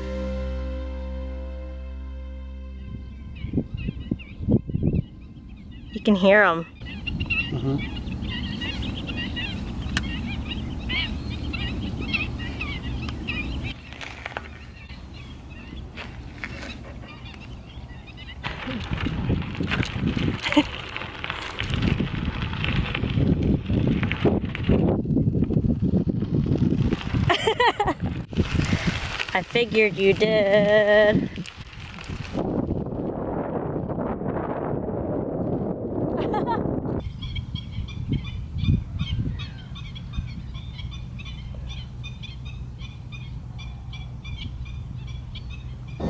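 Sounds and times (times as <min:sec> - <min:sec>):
steady low rumble: 0:00.0 - 0:27.2
birds honking calls: 0:02.2 - 0:18.6, 0:37.0 - 0:46.0
wind buffeting microphone: 0:02.9 - 0:46.0
bicycle tyres rumbling on path: 0:08.1 - 0:42.6.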